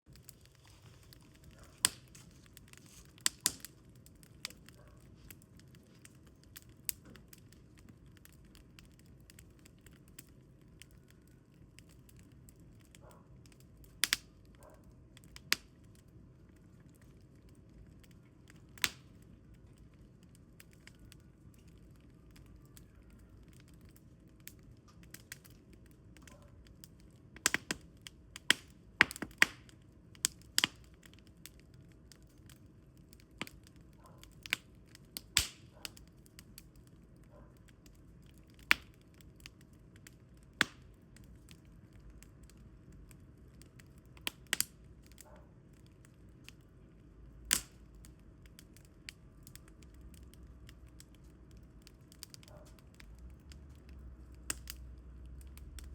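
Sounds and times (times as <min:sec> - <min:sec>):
firewood crackling and popping: 0:00.0 - 0:55.9.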